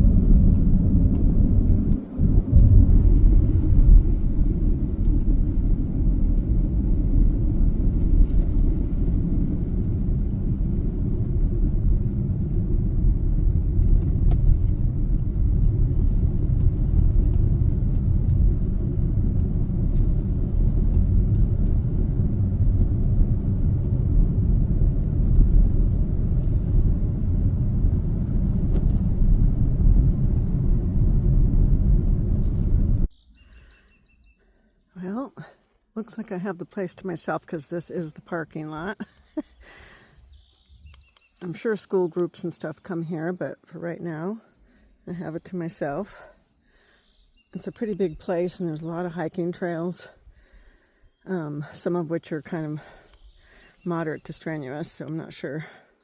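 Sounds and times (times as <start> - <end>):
car road and engine rumble: 0.0 - 33.2.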